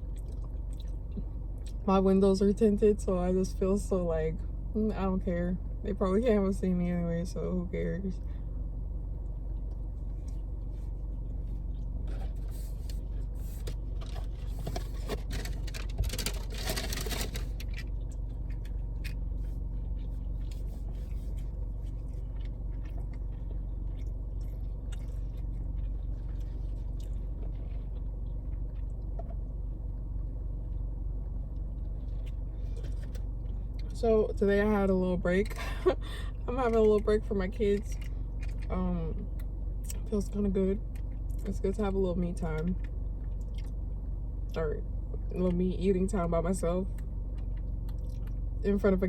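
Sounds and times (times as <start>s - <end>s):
chewing and mouth clicks: 0.0s - 1.8s, 17.5s - 30.0s, 30.7s - 34.0s, 37.7s - 40.1s, 42.6s - 44.6s, 46.9s - 48.4s
low hum inside car: 0.0s - 49.0s
scraping rustles: 10.0s - 22.3s.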